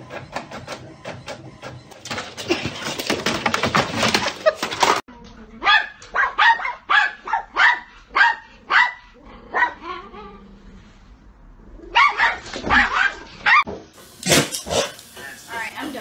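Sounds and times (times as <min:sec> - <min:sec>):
dog barking: 0:05.6 - 0:09.9, 0:11.9 - 0:13.7.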